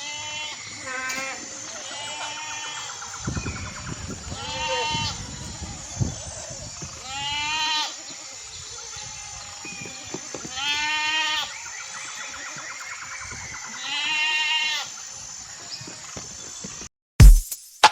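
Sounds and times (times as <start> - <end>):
livestock bleating: 4.4 - 5.2, 7.0 - 8.0, 10.5 - 11.6, 13.7 - 14.9.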